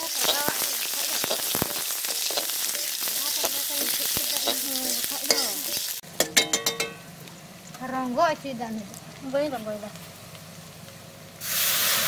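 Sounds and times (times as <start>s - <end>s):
spatula scraping a wok: 0.0s - 6.0s
vegetables sizzling in hot oil: 0.0s - 12.0s.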